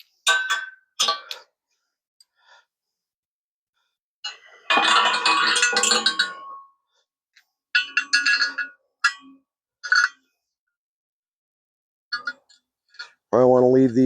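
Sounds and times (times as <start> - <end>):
metal tools clinking: 7.8 - 10.2.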